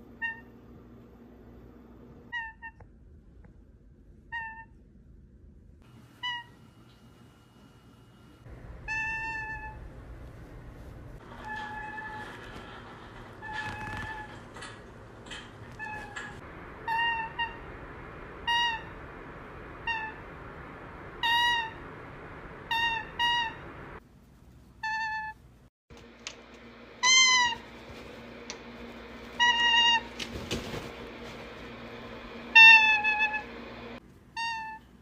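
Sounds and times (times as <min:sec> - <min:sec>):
meow-like animal calls: 0:08.9 - 0:09.8, 0:32.6 - 0:33.5, 0:34.4 - 0:34.9.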